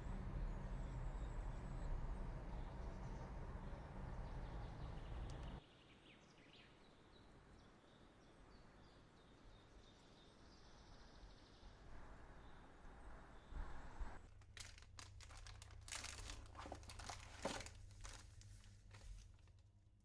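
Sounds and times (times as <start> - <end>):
low steady rumble: 0.0 - 5.6, 12.9 - 20.0
small birds chirping: 0.0 - 6.8.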